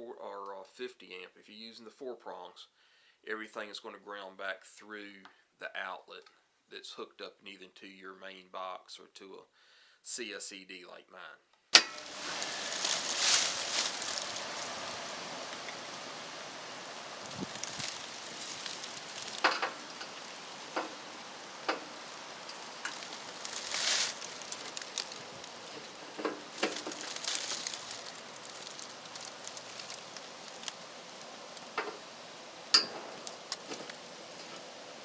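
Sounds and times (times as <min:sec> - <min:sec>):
faint hiss: 0:00.1 - 0:35.0
brief rustles: 0:11.8 - 0:32.2
small clicks and knocks: 0:11.8 - 0:34.7.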